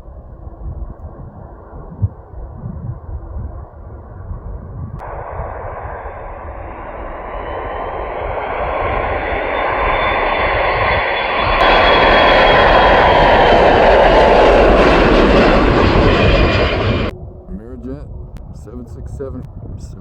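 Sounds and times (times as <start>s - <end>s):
jet engines passing low: 0.0s - 19.6s
high whining tone: 5.0s - 19.2s.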